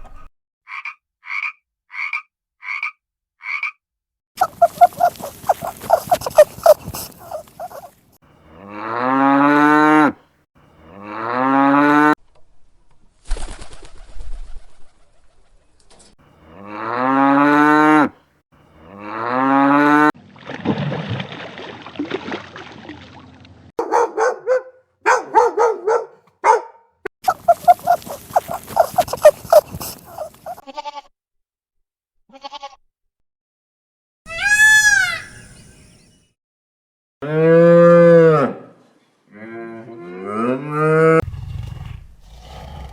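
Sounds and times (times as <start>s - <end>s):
rapid croaking: 4.4s - 7.9s, 27.2s - 30.6s
short pulsed animal calls: 4.4s - 7.9s, 27.3s - 30.6s
cattle mooing: 8.6s - 10.2s, 10.8s - 12.2s, 16.5s - 18.1s, 18.8s - 20.1s, 39.4s - 41.2s.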